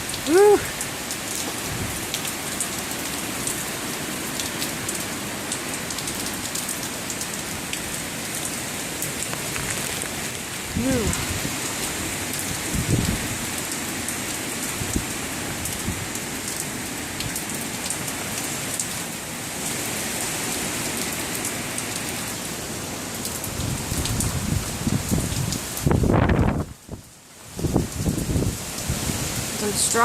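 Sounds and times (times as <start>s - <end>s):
heavy rain hiss: 0.0s - 30.0s
wind buffeting microphone: 9.4s - 13.6s, 23.6s - 26.9s, 27.5s - 29.5s.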